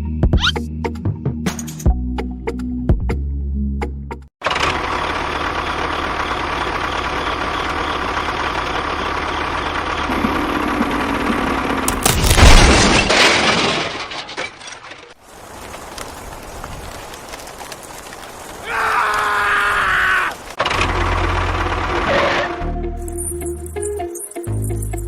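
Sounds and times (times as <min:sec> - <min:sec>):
machine running: 0:04.4 - 0:12.3
loud crash with low rumble: 0:10.1 - 0:14.4.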